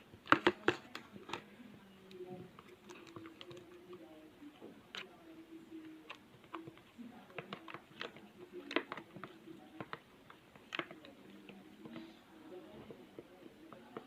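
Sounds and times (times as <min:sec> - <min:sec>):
slime being stirred squelching: 0:02.2 - 0:04.2.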